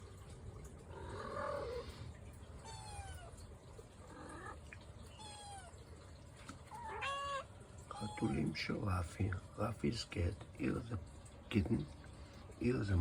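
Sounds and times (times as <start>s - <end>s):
cats meowing: 0.8s - 8.6s.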